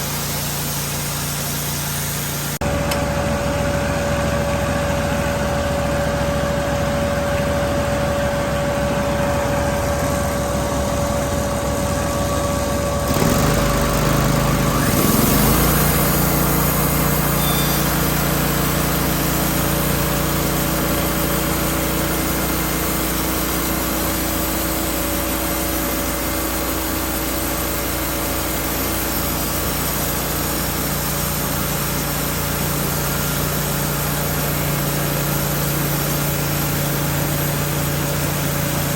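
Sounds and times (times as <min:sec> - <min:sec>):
hiss: 0:00.0 - 0:02.6
sawmill engine running: 0:00.0 - 0:38.9.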